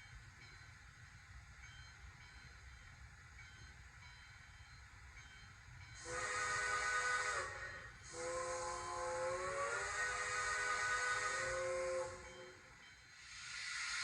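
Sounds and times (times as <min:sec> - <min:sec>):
steam whistle chime blast: 0:06.0 - 0:14.0.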